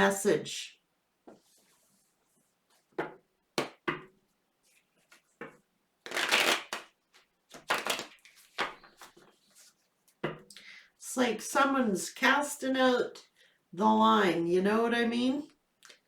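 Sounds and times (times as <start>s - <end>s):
cards being shuffled: 6.0s - 9.7s.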